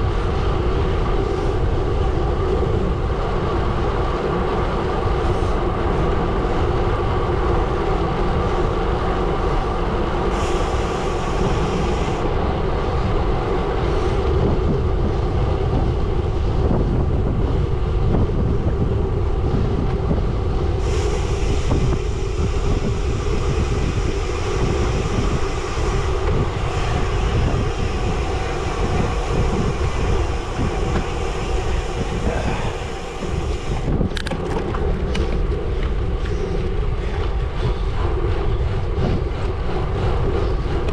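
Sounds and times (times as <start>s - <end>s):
wind noise on microphone: 0.0s - 40.9s
bike tyres rolling on gravel: 20.8s - 37.2s.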